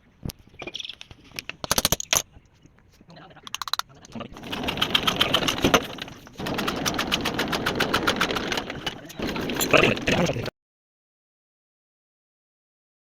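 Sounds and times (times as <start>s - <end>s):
diesel engine knocking: 4.4s - 9.5s.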